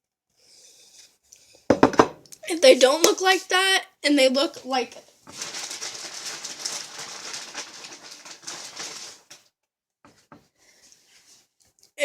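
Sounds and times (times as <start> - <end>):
rustling handling noise: 5.2 - 9.5.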